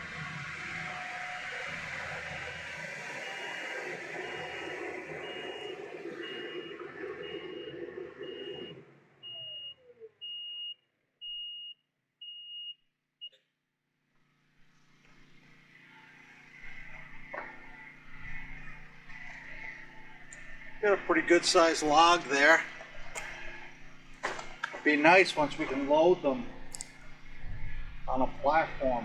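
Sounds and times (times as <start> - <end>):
skid steer engine running: 0.0 - 8.7, 15.0 - 29.0
high warning beeper: 3.2 - 10.8
click: 16.7 - 20.7, 22.6 - 24.9, 26.6 - 27.5.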